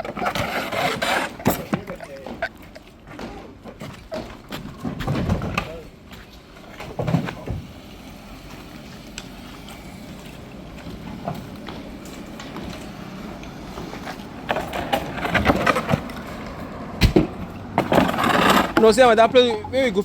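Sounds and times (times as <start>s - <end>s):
vehicle engine humming: 5.9s - 20.0s.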